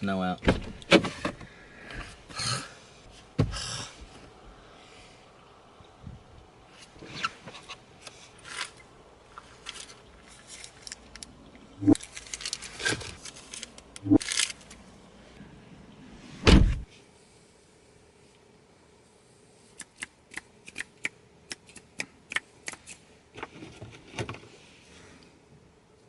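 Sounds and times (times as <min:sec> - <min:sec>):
handling clicks and rustles: 0:06.8 - 0:14.8
heavy thump: 0:16.4 - 0:16.9.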